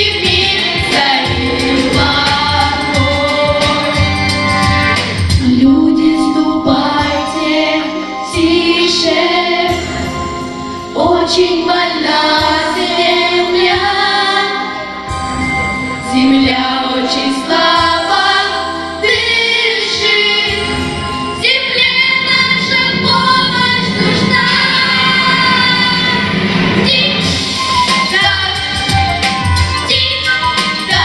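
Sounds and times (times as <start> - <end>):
female vocal group singing: 0.0 - 4.3, 5.4 - 9.9, 11.0 - 14.9, 16.0 - 20.7, 21.4 - 27.2, 29.9 - 31.0
musical accompaniment: 0.0 - 31.0.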